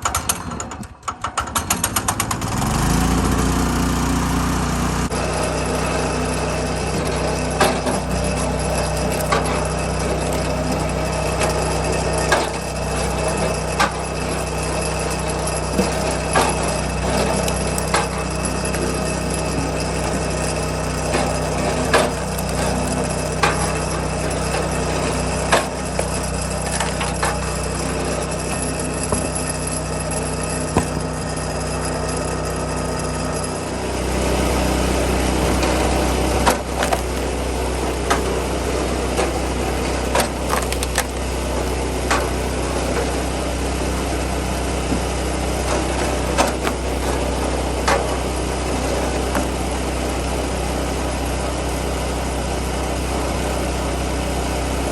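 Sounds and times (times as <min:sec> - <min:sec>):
small engine running: 0:00.0 - 0:54.9
firewood splitting knocks and cracks: 0:28.4 - 0:29.9, 0:30.7 - 0:31.3, 0:36.4 - 0:37.4, 0:40.1 - 0:42.4, 0:45.7 - 0:48.1.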